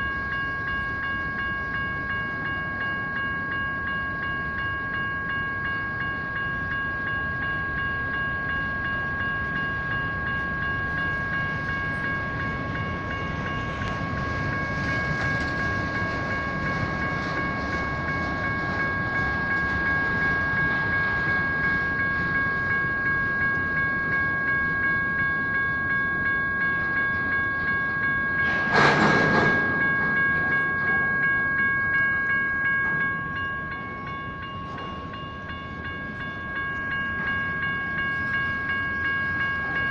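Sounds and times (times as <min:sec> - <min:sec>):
electronic crossing bells ringing: 0:00.0 - 0:39.9
train wheels clicking over rails: 0:28.4 - 0:31.4
loud burst of noise: 0:28.5 - 0:29.8.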